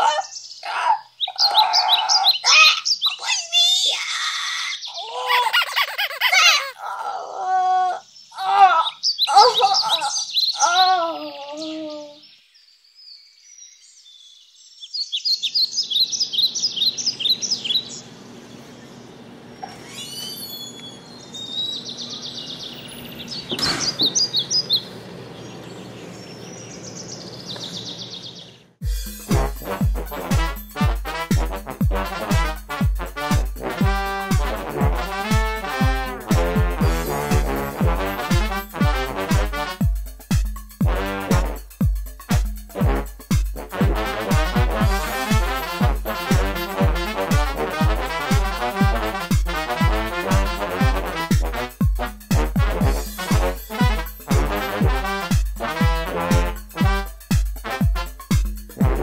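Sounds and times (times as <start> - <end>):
bird-like chirping: 0.0 - 3.9, 7.8 - 28.7
steady low hum: 16.8 - 41.6.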